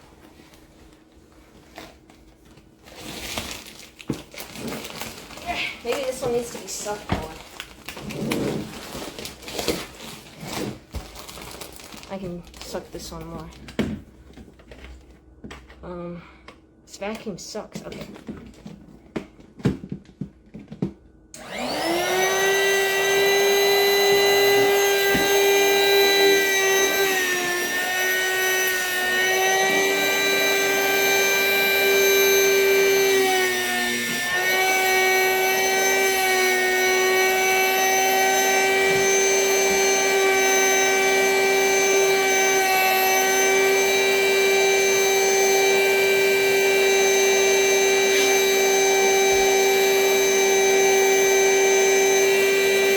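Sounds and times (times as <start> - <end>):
vacuum cleaner motor whine: 2.8 - 10.8, 21.4 - 52.9.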